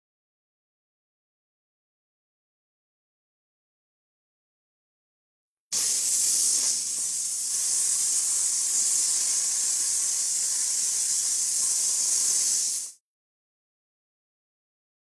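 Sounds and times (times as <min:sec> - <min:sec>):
loud steady hiss: 0:05.8 - 0:13.0.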